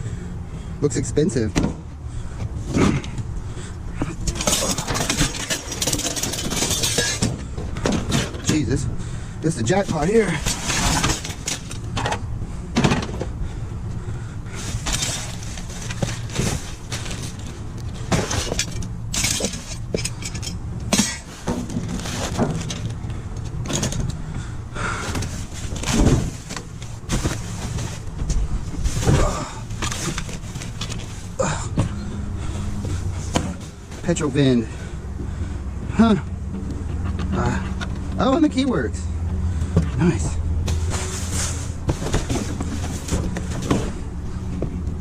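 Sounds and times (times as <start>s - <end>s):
steady low hum: 0.0s - 45.0s
junk clattering in a dumpster: 4.0s - 13.5s, 14.5s - 34.1s, 39.6s - 44.8s.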